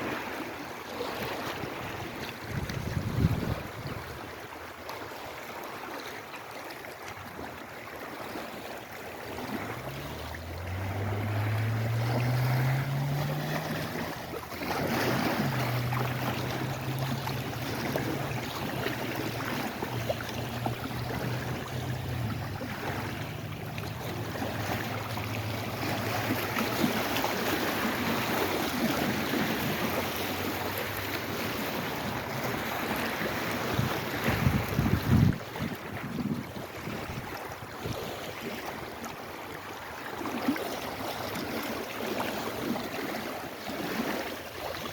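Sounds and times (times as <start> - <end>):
waves washing against shore: 0.0 - 44.9
wind on microphone: 1.5 - 4.4, 9.2 - 39.0.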